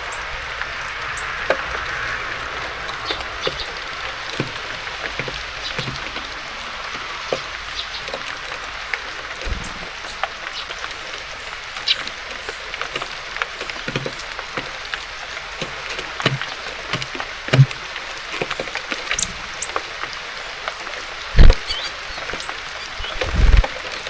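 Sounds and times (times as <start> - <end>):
birds pecking on a feeder: 0.0 - 24.0
rain hiss: 0.0 - 24.0
high bird chirps: 21.4 - 23.7.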